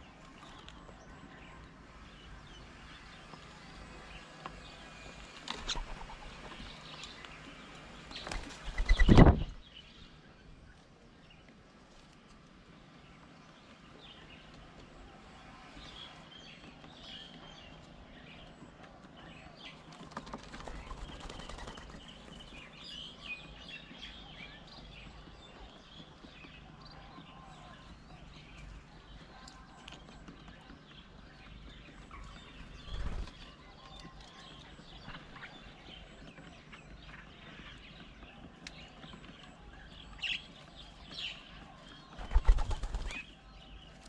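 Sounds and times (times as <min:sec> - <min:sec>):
birds chirping: 0:00.0 - 0:44.0
low background hum: 0:00.0 - 0:44.0.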